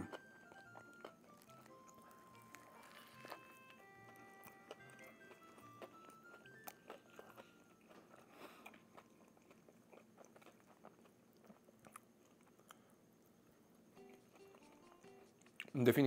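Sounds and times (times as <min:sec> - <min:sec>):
person chewing crunchy food: 0:00.0 - 0:13.2, 0:13.9 - 0:15.8.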